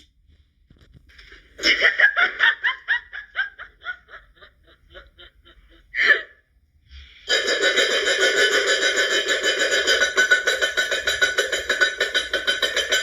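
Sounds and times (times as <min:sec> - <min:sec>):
person laughing: 0:01.6 - 0:06.3
steady musical sound: 0:07.3 - 0:13.0.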